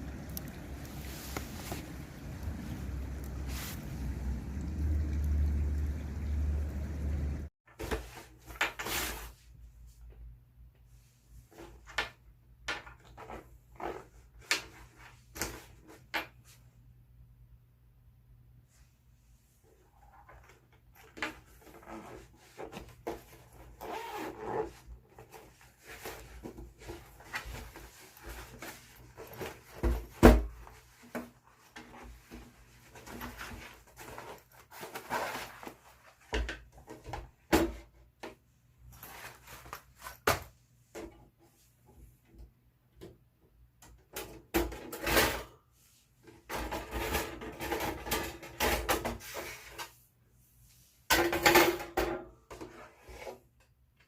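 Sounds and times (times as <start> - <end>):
cooking gear rubbing and scraping: 0.0 - 4.6, 21.5 - 29.7, 31.6 - 36.0.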